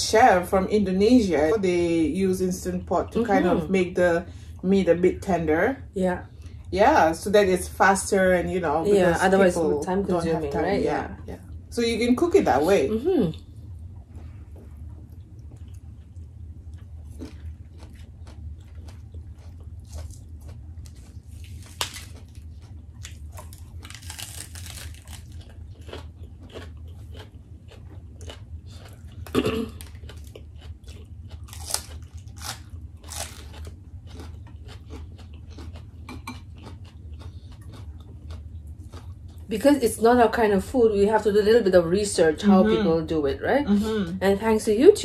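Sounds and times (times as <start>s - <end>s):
low steady hum: 0.0s - 45.0s
chewing with crunchy bites: 13.3s - 40.1s.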